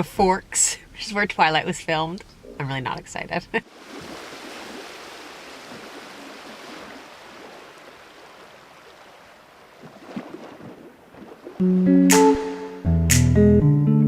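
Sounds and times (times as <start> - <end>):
wind: 0.0 - 11.6
rushing water: 3.6 - 11.6
guitar music: 11.6 - 14.0.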